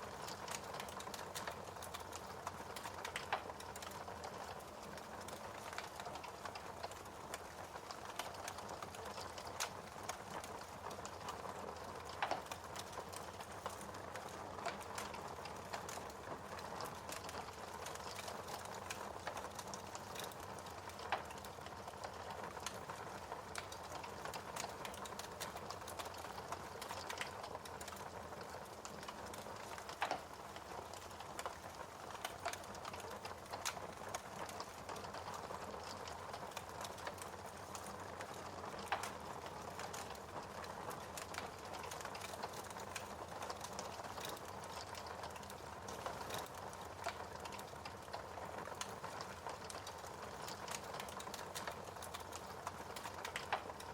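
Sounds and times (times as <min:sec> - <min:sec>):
fire crackling: 0:00.0 - 0:53.9.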